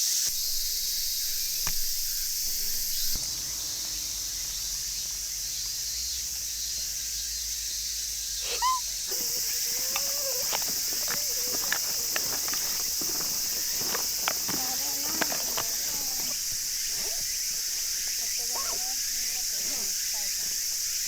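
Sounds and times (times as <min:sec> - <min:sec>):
insects chorus: 0:00.0 - 0:21.0
hooked whistle-like call: 0:08.4 - 0:16.4.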